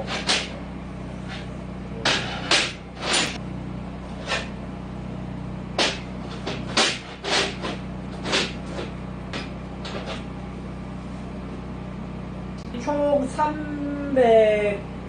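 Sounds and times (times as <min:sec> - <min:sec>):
scrapes and knocks of metal parts: 0:00.0 - 0:00.6, 0:01.2 - 0:03.4, 0:04.2 - 0:04.5, 0:05.8 - 0:10.3
steady low hum: 0:00.0 - 0:15.0.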